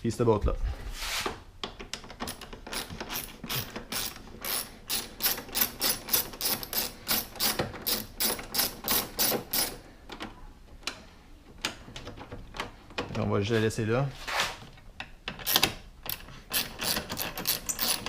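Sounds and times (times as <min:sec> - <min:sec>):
hand ratchet clicking: 0:01.7 - 0:09.8, 0:15.3 - 0:18.0.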